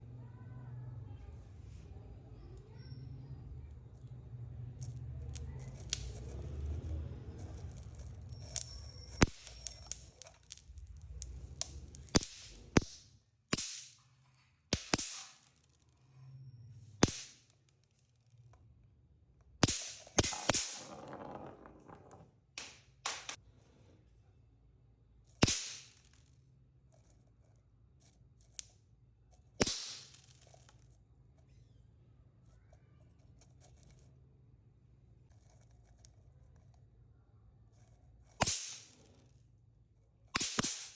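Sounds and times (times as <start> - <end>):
firecrackers popping: 7.8 - 14.0, 14.7 - 15.6, 17.0 - 17.5, 19.6 - 22.0, 25.4 - 26.2, 29.6 - 30.5, 38.4 - 39.1, 40.4 - 40.9.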